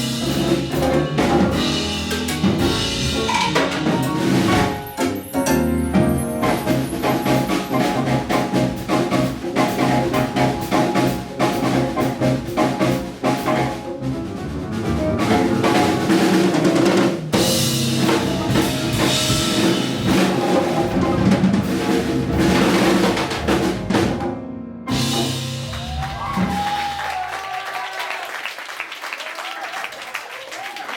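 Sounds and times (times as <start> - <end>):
latin jazz band playing: 0.0 - 27.0
audience applauding and cheering: 25.2 - 30.9.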